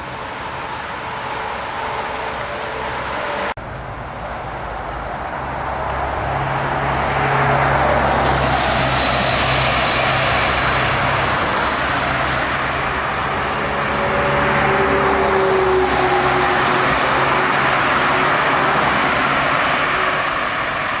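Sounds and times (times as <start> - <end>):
jet airliner engine rushing: 5.5 - 21.0.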